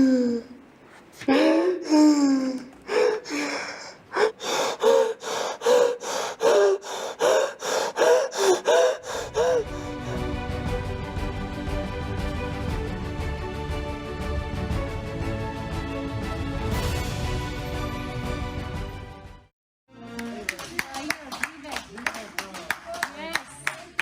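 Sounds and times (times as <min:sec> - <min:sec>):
music: 0:09.0 - 0:21.8.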